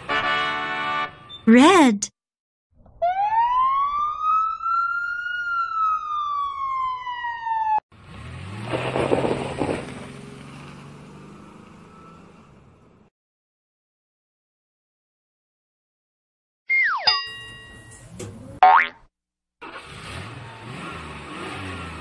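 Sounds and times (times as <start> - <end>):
siren wailing: 3.0 - 7.8
fire truck engine pulling away: 3.6 - 13.1, 19.6 - 22.0.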